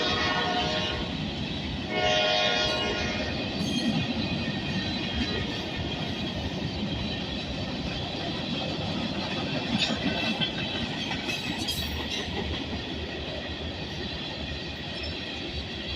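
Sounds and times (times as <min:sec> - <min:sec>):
freight train wheels rumbling: 0:00.0 - 0:15.9
wheels clickety-clack over joints: 0:02.7 - 0:15.9.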